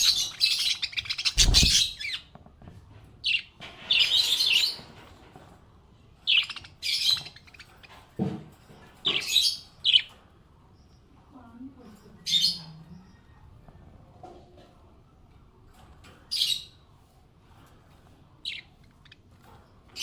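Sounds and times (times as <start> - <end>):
parrots chirping and chattering: 0.0 - 13.3, 14.8 - 20.0.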